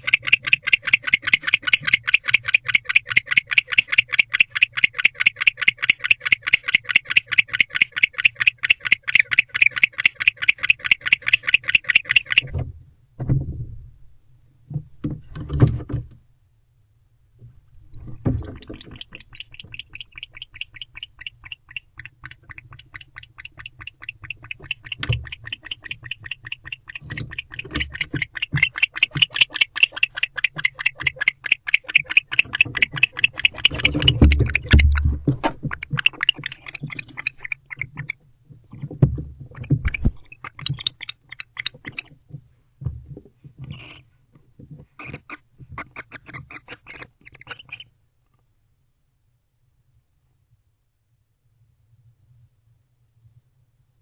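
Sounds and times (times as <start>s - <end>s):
barn owl calling: 0.0s - 12.6s, 17.4s - 42.4s, 43.6s - 44.1s, 44.8s - 47.9s.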